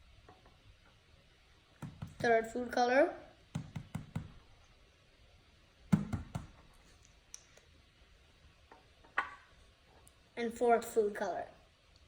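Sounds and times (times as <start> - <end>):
sharp knock: 5.9 - 6.6.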